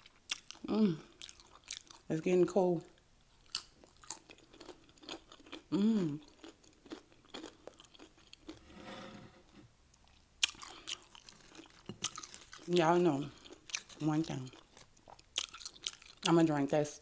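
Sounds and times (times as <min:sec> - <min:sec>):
chips crunching while chewed: 0:03.5 - 0:08.6, 0:10.4 - 0:16.2.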